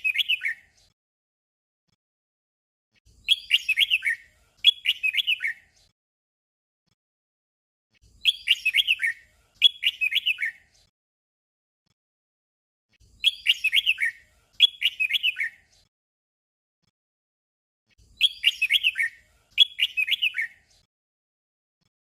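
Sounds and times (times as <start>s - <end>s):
bird singing warbled phrases: 0.0s - 1.0s, 3.0s - 5.9s, 7.9s - 10.9s, 12.9s - 15.9s, 17.9s - 20.9s.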